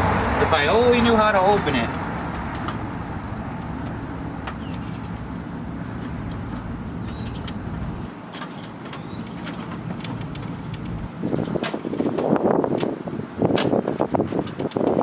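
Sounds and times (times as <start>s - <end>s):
steady low rumble: 0.0s - 8.1s, 9.8s - 11.6s.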